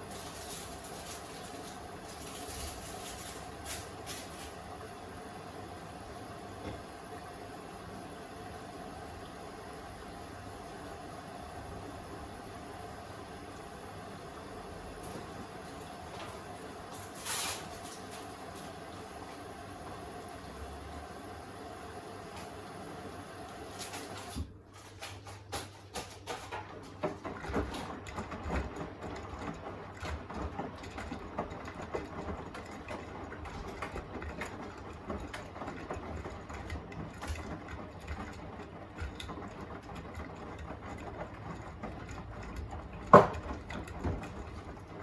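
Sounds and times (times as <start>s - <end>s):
washing machine hiss: 0.0s - 24.7s
laundry tumbling in drum: 23.8s - 45.0s
knocks in washing machine drum: 43.0s - 44.4s.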